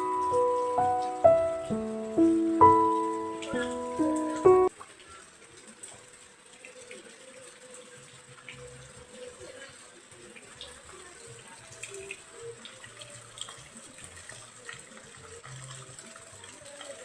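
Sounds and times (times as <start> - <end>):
water drips: 0.0 - 9.3
rain falling: 0.0 - 17.0
running splashing water: 0.0 - 17.0.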